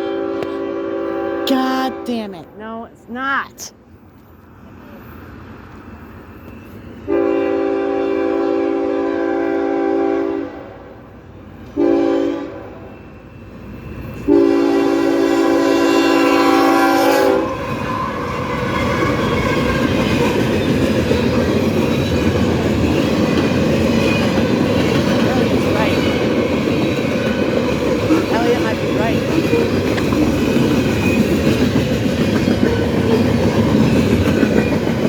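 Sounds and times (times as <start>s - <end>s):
train rumbling past: 4.3s - 35.0s
locomotive air horn: 7.1s - 10.7s, 11.8s - 12.7s, 14.3s - 17.5s.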